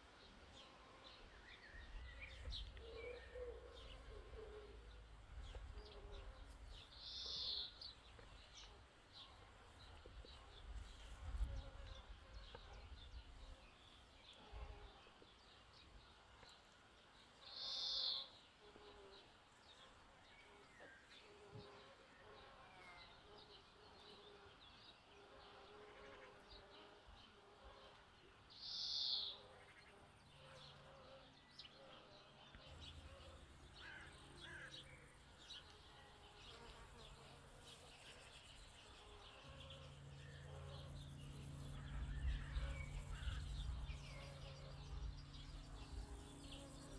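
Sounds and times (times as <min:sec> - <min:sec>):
faint birdsong: 0:00.0 - 0:46.9
insects buzzing: 0:32.7 - 0:46.9.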